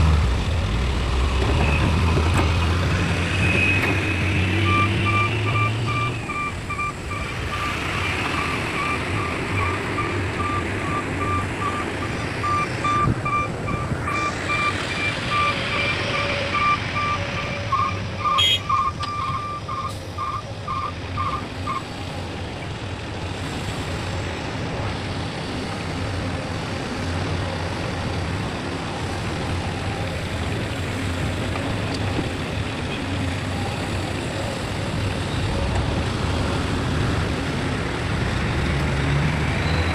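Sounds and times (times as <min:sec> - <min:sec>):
backup alarm beeping: 0:04.6 - 0:21.4.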